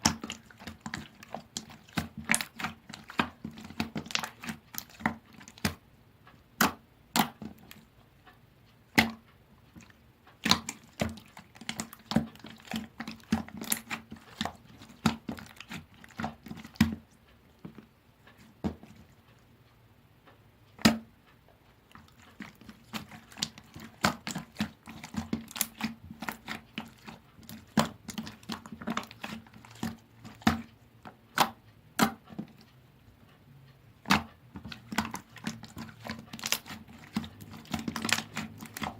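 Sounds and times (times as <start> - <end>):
slime squished by hand: 0.0 - 5.8, 9.8 - 17.0, 21.9 - 30.7, 34.0 - 38.9.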